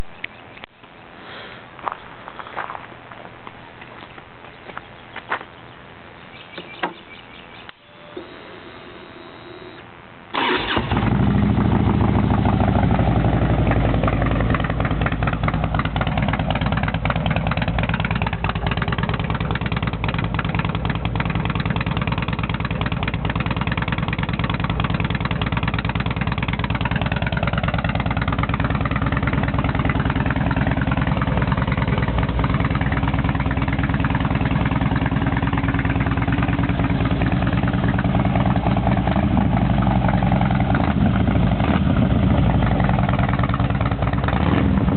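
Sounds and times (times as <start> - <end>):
motorcycle engine starting and idling: 10.3 - 44.9.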